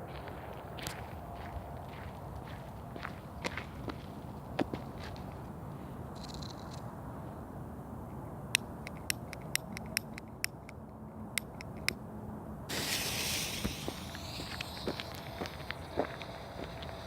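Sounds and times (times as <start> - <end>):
firecrackers popping: 12.7 - 17.0
hiss of burning pyrotechnics: 12.7 - 17.0.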